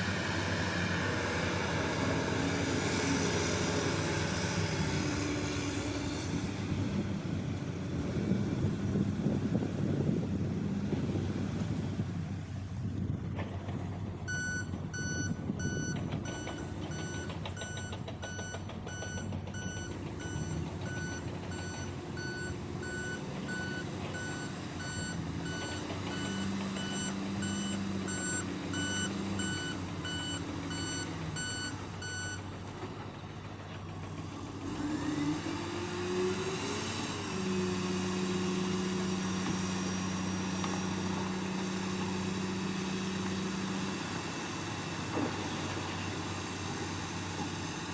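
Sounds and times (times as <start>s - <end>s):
truck engine running: 0.0s - 47.9s
truck reversing alarm beeping: 14.3s - 32.5s.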